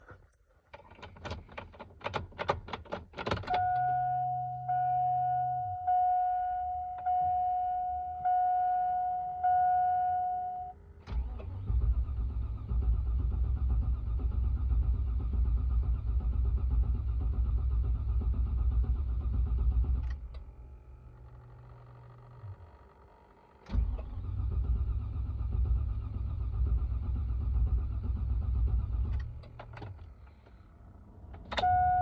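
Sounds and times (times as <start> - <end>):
warning chime pulsing: 3.5 - 10.8, 31.6 - 32.0
engine cranking on starter: 11.0 - 20.5, 23.6 - 31.9.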